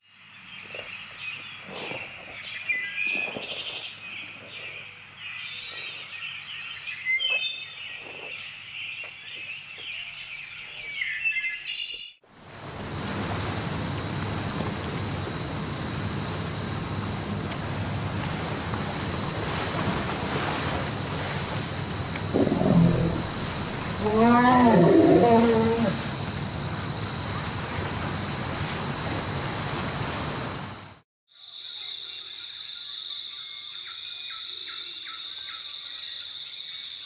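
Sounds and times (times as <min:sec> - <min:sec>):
outdoor noise haze: 0:12.2 - 0:31.0.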